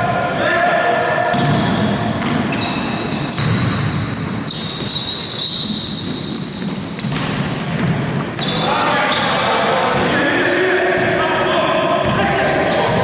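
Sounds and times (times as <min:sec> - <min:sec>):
sneakers squeaking on floor: 0:00.0 - 0:00.5, 0:01.3 - 0:10.1, 0:12.0 - 0:13.0
basketball bouncing: 0:01.3 - 0:05.0, 0:05.7 - 0:08.4, 0:12.0 - 0:13.0.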